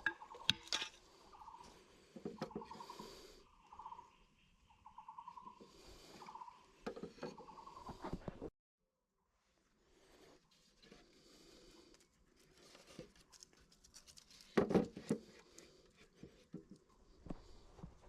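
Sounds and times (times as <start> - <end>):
objects being handled: 0.0 - 1.0.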